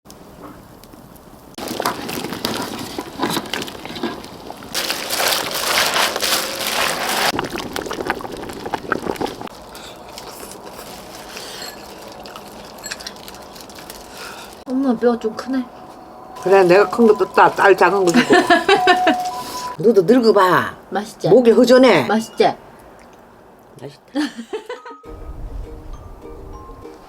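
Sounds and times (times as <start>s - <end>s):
liquid sloshing and pouring: 1.6s - 14.2s.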